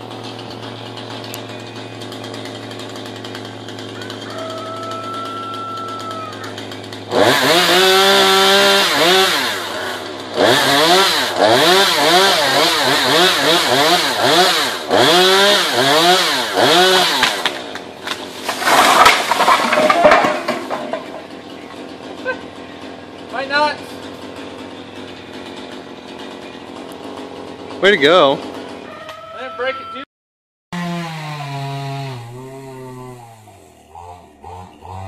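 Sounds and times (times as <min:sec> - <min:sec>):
chainsaw engine revving: 0:00.0 - 0:28.8, 0:30.8 - 0:35.0
rough crackling noise: 0:18.0 - 0:21.4.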